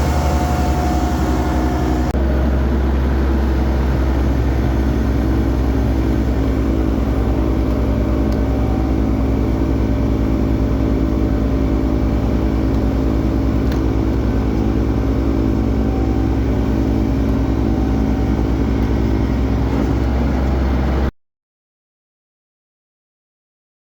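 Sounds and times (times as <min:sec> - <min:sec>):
tractor diesel engine running: 0:00.0 - 0:21.1.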